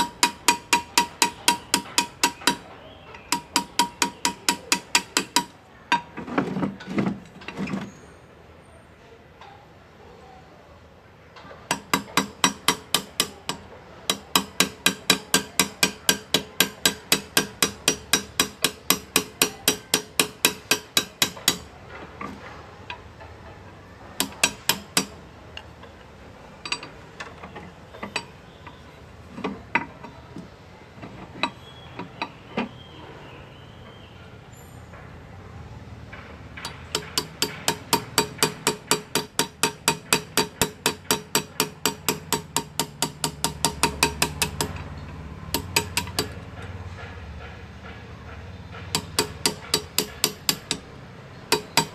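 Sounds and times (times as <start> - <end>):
hammer tapping engraving tool: 0.0 - 6.1, 11.7 - 21.7, 24.2 - 25.2, 36.6 - 46.7, 47.4 - 51.9.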